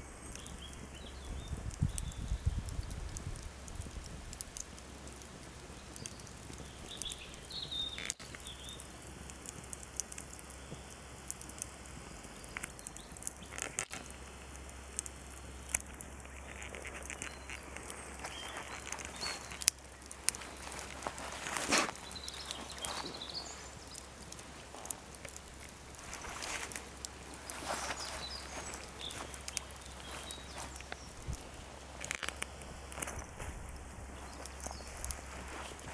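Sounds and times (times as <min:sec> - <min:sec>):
bird chirping: 0:00.0 - 0:02.8, 0:05.7 - 0:08.9, 0:15.4 - 0:24.3, 0:27.4 - 0:31.3, 0:34.1 - 0:35.7
wood fire crackling: 0:00.0 - 0:35.9.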